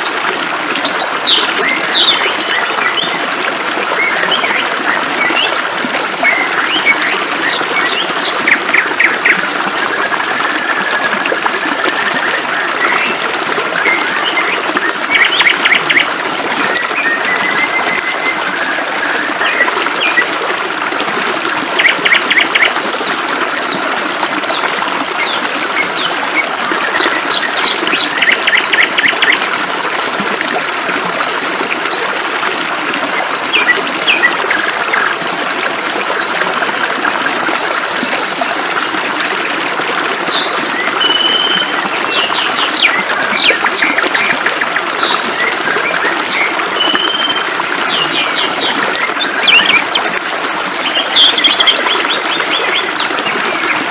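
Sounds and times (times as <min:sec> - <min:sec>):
small birds chirping and trilling: 0:00.0 - 0:03.2, 0:24.5 - 0:32.0, 0:40.0 - 0:53.7
flowing water rushing: 0:00.0 - 0:53.9.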